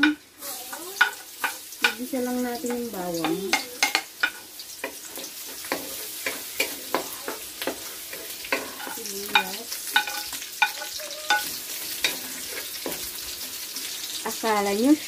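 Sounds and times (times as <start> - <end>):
spatula knocking against wok: 0.0 - 13.1
garlic and onion sizzling in oil: 0.0 - 15.0.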